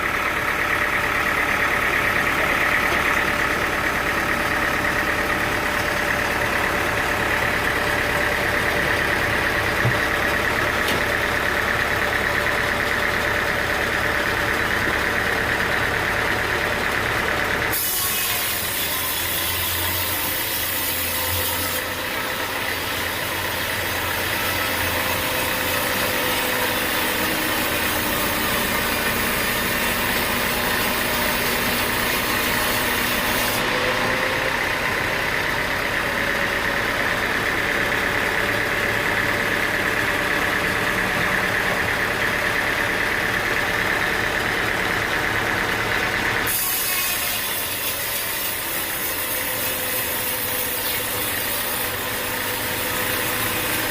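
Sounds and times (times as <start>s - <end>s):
sawmill machine whining: 0.0s - 53.9s.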